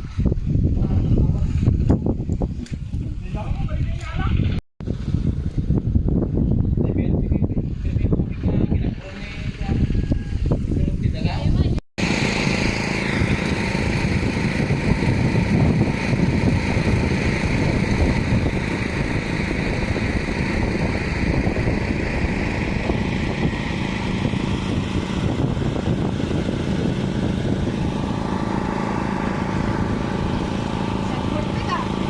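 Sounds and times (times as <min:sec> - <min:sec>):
motor humming: 0:12.0 - 0:32.0.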